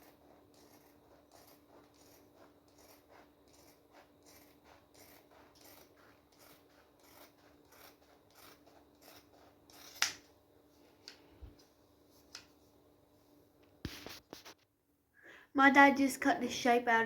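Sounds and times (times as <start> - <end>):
scissors snipping vinyl: 0.0 - 10.2
faint steady hum: 0.0 - 17.0.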